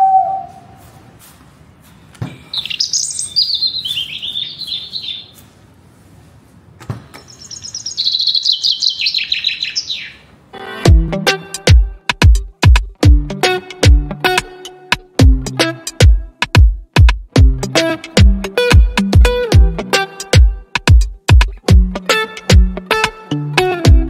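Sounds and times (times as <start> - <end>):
songbird singing: 0.0 - 1.0, 2.0 - 5.5, 7.2 - 10.3.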